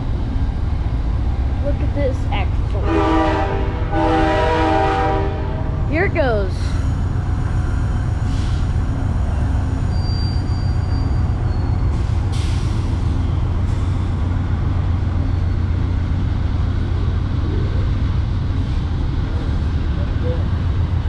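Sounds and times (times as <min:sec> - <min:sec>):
diesel train rumbling: 0:00.0 - 0:21.0
faint high squeal: 0:09.7 - 0:12.0.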